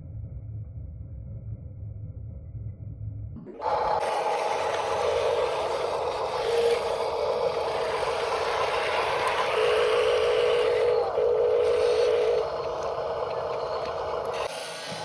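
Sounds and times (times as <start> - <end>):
electric motor whine with gear rattle: 3.4 - 15.0.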